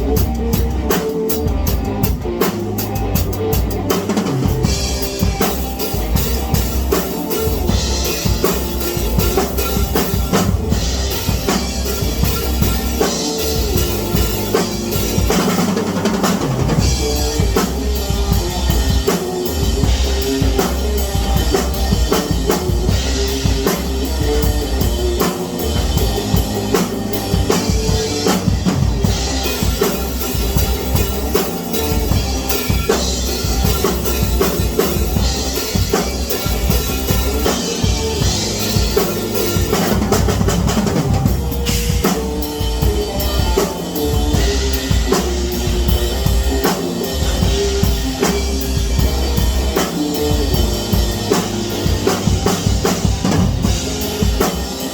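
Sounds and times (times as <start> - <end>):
bass notes: 0.0 - 54.9
drum kit beat: 0.0 - 54.9.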